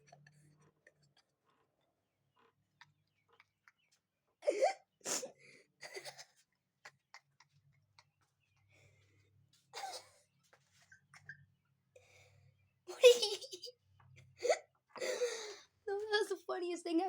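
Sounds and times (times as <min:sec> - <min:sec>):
held-in laughter: 0:12.9 - 0:13.7.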